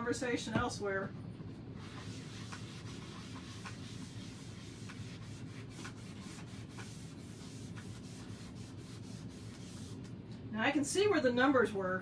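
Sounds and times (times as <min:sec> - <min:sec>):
scrubbing on a chalkboard: 0:01.8 - 0:10.1.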